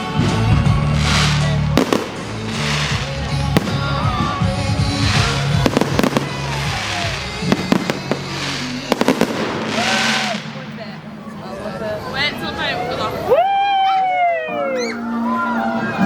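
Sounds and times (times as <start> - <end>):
pop music over sound system: 0.0 - 10.7
fireworks crackling: 0.0 - 13.2
fireworks banging: 0.2 - 12.1.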